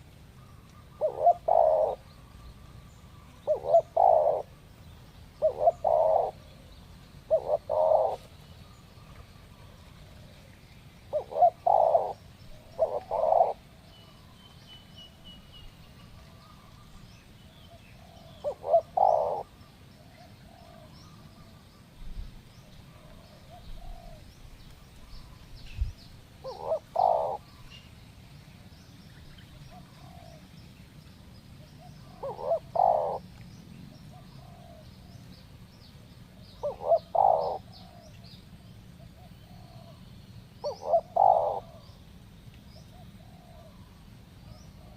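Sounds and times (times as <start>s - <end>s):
doves cooing: 0.0s - 2.4s, 3.1s - 4.7s, 5.4s - 13.8s, 17.8s - 21.6s, 22.9s - 24.3s, 26.4s - 27.6s, 29.7s - 30.5s, 31.6s - 33.3s, 34.1s - 35.1s, 36.6s - 38.2s, 39.0s - 40.0s, 40.6s - 42.0s, 42.8s - 44.9s
faint small birds chirping: 0.0s - 44.9s.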